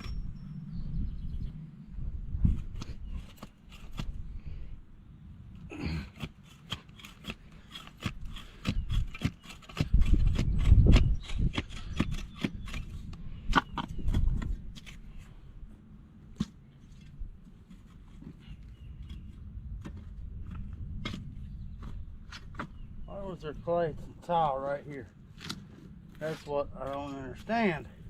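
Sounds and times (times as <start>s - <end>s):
shovel scraping wet soil: 6.2s - 10.4s.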